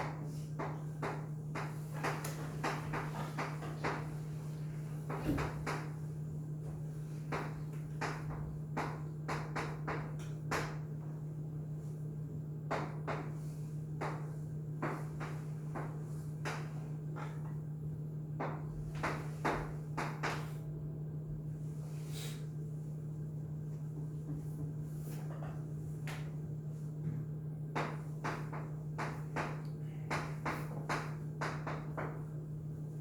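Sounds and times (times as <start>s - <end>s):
sharp taps and knocks: 0.0s - 4.2s, 7.3s - 10.8s, 27.8s - 32.2s
low electrical hum: 0.0s - 33.0s.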